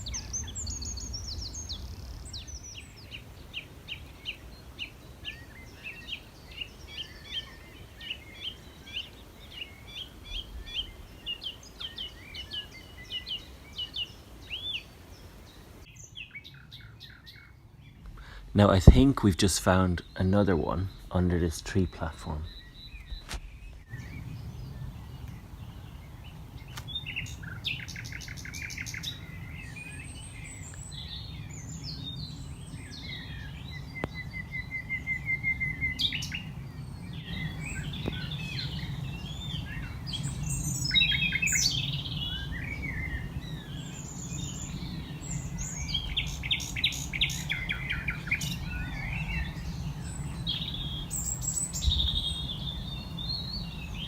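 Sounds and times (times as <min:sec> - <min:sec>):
nightingale singing: 0:00.0 - 0:54.0
steady low rumble: 0:17.6 - 0:54.0.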